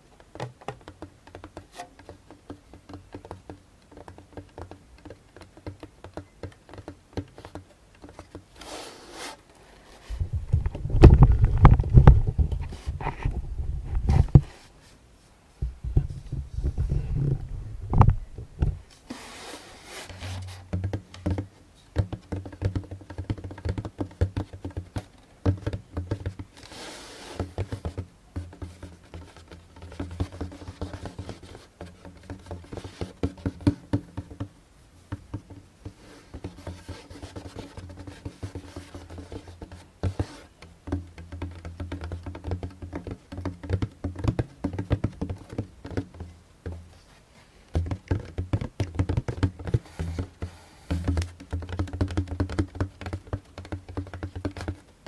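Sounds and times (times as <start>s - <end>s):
fingertips tapping djembe: 10.1s - 14.5s, 15.6s - 18.9s, 27.3s - 55.0s.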